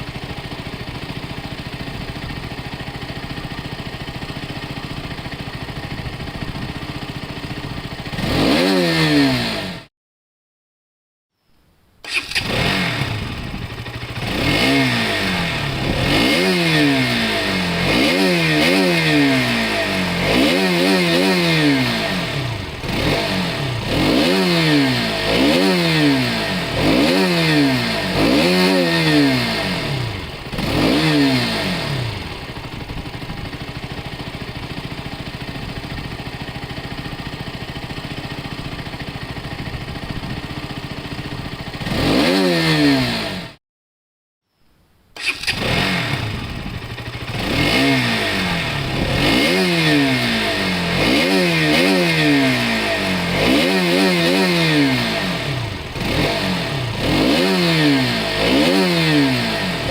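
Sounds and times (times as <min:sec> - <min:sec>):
motorcycle engine revving and idling: 0:00.0 - 0:09.9, 0:12.1 - 0:43.6, 0:45.2 - 0:59.9.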